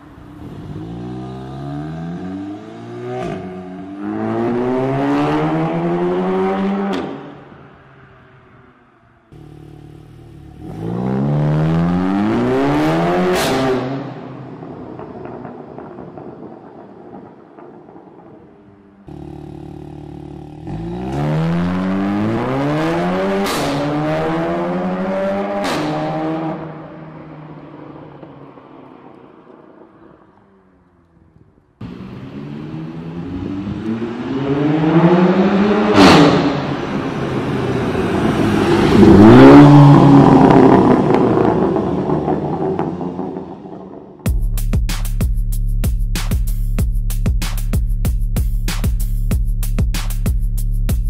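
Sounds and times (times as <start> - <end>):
car engine accelerating hard: 9.3 - 15.5, 19.1 - 27.6, 31.8 - 44.2.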